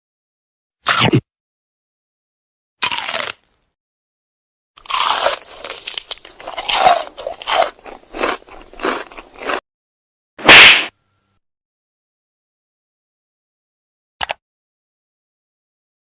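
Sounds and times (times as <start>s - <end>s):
crisp food crunching: 2.8s - 3.4s, 4.8s - 9.6s
loud sharp burst: 10.4s - 10.9s.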